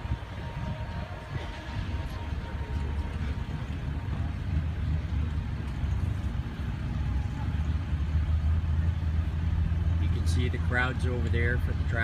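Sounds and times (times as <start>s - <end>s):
vehicle engine drone: 0.0s - 12.0s.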